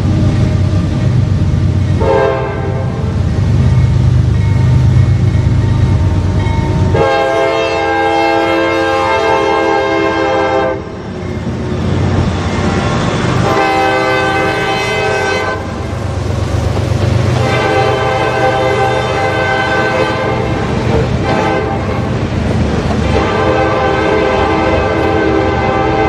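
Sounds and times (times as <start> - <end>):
low rumble of passing train: 0.0 - 26.0
locomotive air horn blasts: 2.0 - 3.0, 6.9 - 10.9, 13.4 - 15.9, 17.3 - 22.0, 23.1 - 26.0.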